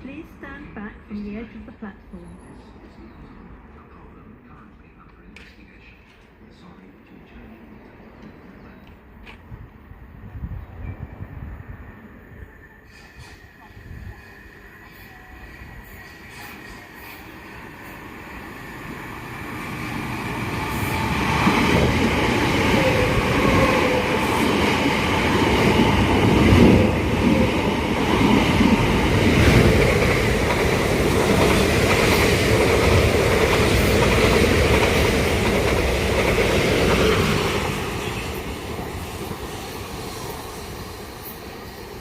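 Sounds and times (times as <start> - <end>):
faint train whine: 0.0 - 42.0
train rumbling clatter: 19.4 - 40.4.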